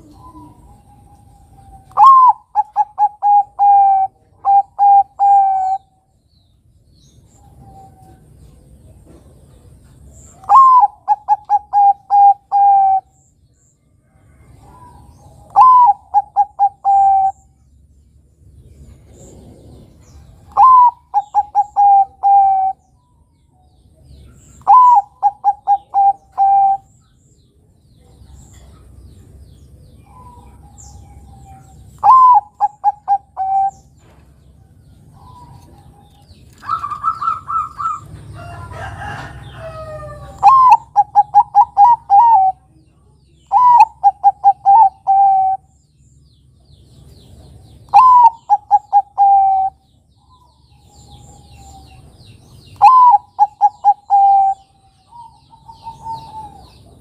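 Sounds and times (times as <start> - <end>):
higher steady bird call: 0.0 - 6.0, 10.3 - 13.2, 14.6 - 17.6, 20.5 - 23.0, 24.4 - 27.0, 30.1 - 34.0, 35.2 - 42.7, 43.4 - 45.8, 47.9 - 52.0, 52.7 - 56.8
dove cooing song: 0.0 - 6.2, 7.2 - 13.3, 14.1 - 17.6, 18.8 - 27.1, 28.0 - 45.8, 47.0 - 57.0.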